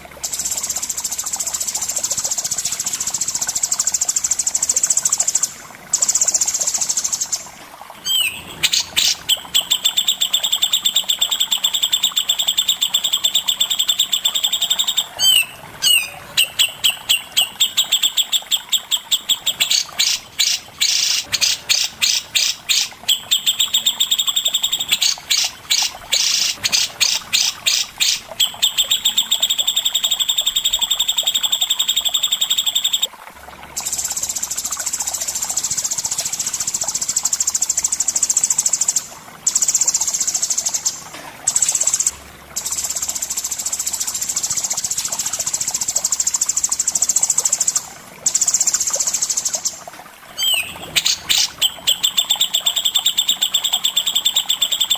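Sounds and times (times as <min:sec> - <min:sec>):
songbird trilling: 0:08.1 - 0:33.1, 0:50.4 - 0:54.9.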